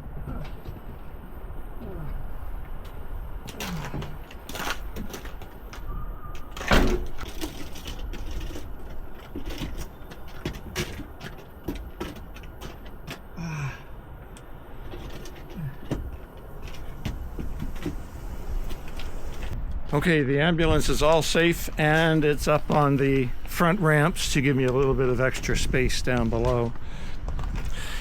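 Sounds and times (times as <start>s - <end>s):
wind buffeting microphone: 15.5s - 28.0s.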